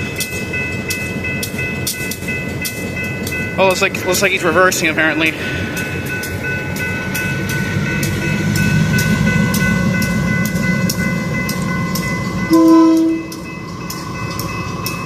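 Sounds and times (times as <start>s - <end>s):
diesel locomotive rumble: 0.0s - 15.0s
railroad crossing bell ringing: 0.0s - 15.0s
locomotive horn blast: 12.5s - 13.4s.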